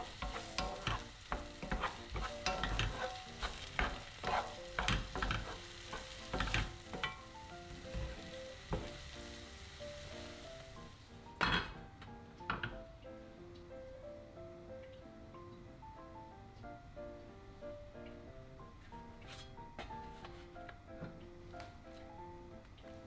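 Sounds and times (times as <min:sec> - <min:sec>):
utensil scraping a pan: 0:00.0 - 0:10.9, 0:19.2 - 0:19.6
food sizzling in a frying pan: 0:00.0 - 0:11.8
gentle piano music: 0:00.0 - 0:23.0.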